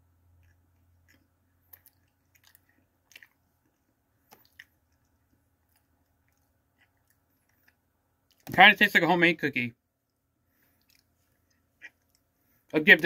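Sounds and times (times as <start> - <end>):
person chewing cookie: 0.0 - 8.5, 10.0 - 12.7
mouth clicks and smacks: 0.4 - 8.6, 10.1 - 12.3.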